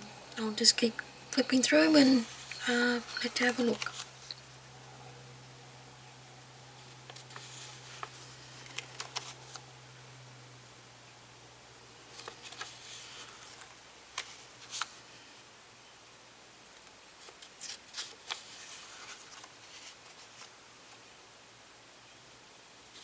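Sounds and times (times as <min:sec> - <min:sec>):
paper pages rustling: 0:02.0 - 0:04.4, 0:06.8 - 0:09.7, 0:12.1 - 0:15.0, 0:17.2 - 0:21.0.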